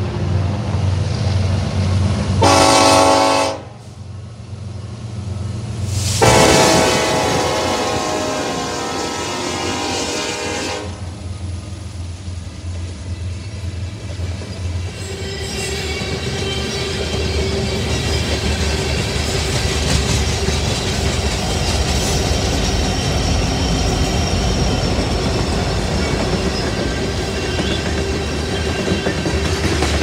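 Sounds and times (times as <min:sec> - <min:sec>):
freight cars rumbling and clattering: 0:12.2 - 0:30.0.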